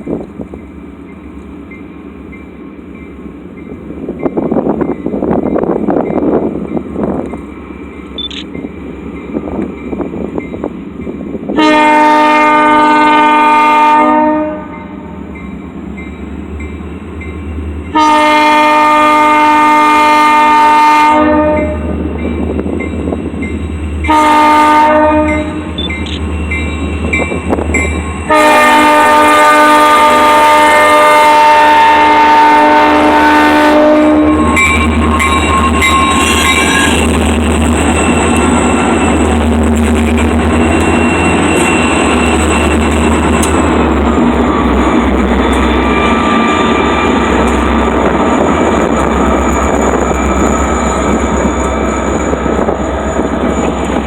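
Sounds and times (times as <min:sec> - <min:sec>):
train cars rattling past: 0:00.0 - 0:54.0
diesel locomotive horn blasts: 0:11.5 - 0:15.4, 0:17.8 - 0:22.1, 0:24.0 - 0:26.1, 0:28.2 - 0:43.6.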